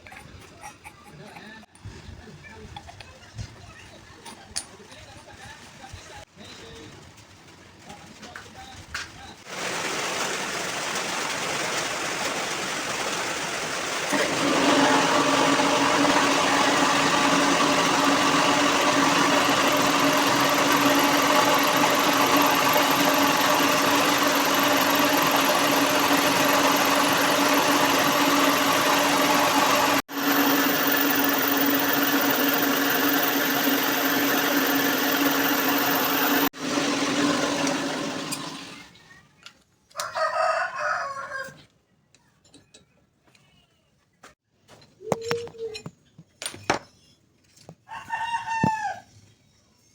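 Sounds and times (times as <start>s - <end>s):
power tool motor humming: 9.5s - 38.6s.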